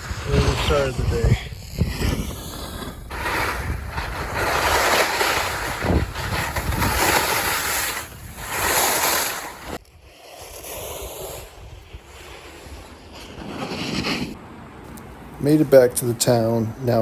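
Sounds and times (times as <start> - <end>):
wind rushing on microphone: 0.0 - 8.8, 9.4 - 14.4
skis scraping over snow: 0.0 - 14.4.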